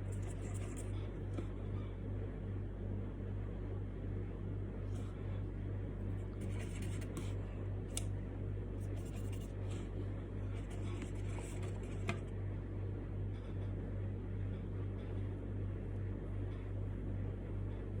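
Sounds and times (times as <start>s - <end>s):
drawing strokes scratching on wood: 0.0s - 1.1s, 6.3s - 7.4s, 8.8s - 9.9s, 10.6s - 12.3s
steady low hum: 0.0s - 18.0s.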